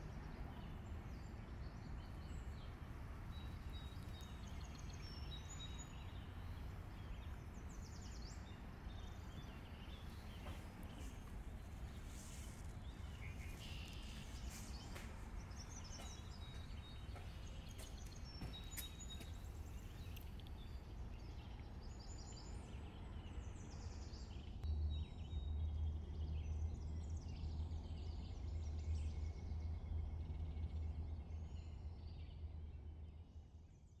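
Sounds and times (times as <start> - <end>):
steady low rumble: 0.0 - 23.9.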